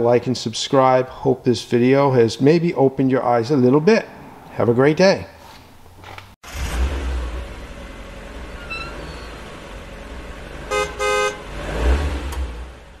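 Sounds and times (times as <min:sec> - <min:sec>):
vehicle rumbling: 0:05.4 - 0:13.0
car horn honking: 0:08.5 - 0:09.4, 0:10.6 - 0:11.6.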